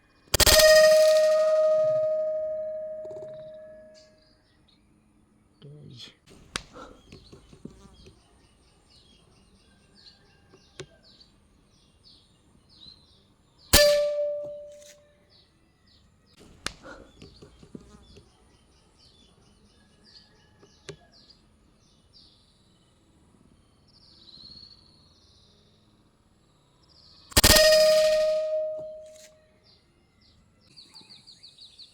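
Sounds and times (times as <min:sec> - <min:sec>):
birds chirping: 0:00.0 - 0:19.9, 0:27.4 - 0:29.3
air rifle shot: 0:00.4 - 0:04.0, 0:13.8 - 0:14.8, 0:27.3 - 0:29.2.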